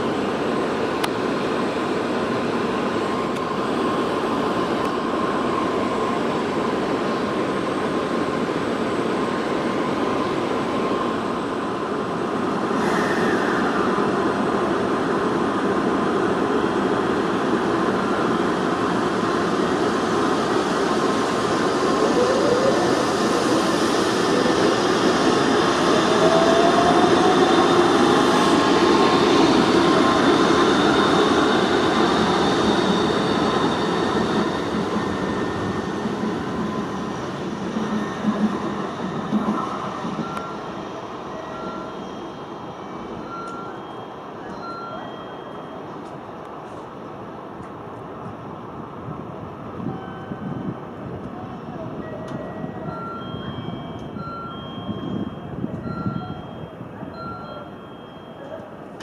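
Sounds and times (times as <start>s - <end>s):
train rushing past: 0.0s - 59.0s
short beeps: 39.4s - 40.7s, 41.3s - 46.1s, 52.0s - 58.7s.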